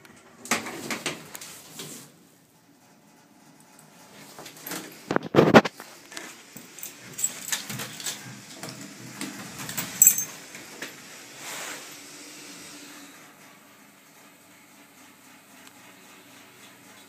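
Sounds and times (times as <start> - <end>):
clicks and metallic rattles: 4.4 - 11.0
sharp metallic jingle: 9.7 - 10.4.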